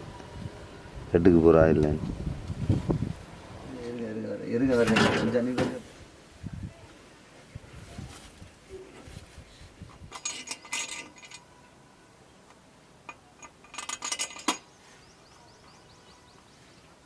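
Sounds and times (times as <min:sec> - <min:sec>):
metal parts and tools clinking: 0:10.1 - 0:11.5, 0:13.1 - 0:14.7.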